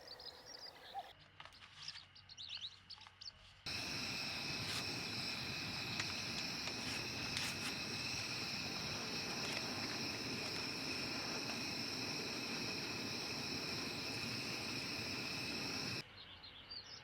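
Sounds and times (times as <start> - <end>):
bird chirps: 0.0 - 3.4
insects chirping: 3.7 - 16.0.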